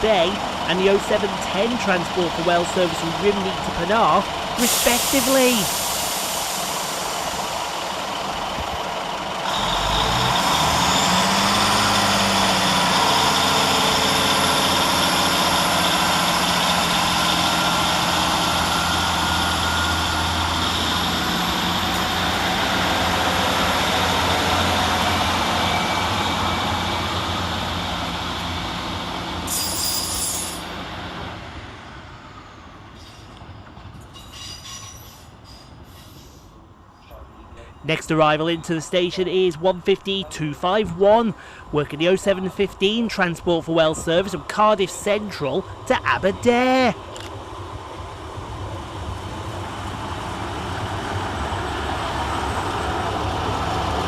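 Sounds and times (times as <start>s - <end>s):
high engine whine: 0.0s - 32.8s
diesel train accelerating: 0.0s - 54.0s.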